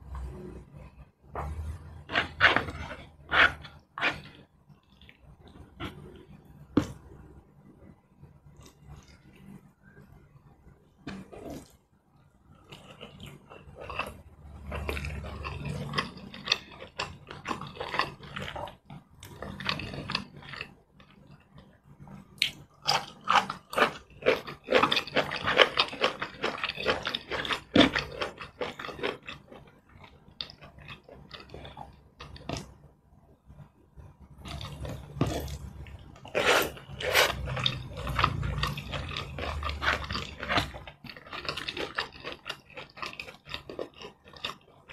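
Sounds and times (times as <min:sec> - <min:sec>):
wet chewing and smacking: 0:22.4 - 0:32.8, 0:34.4 - 0:44.9.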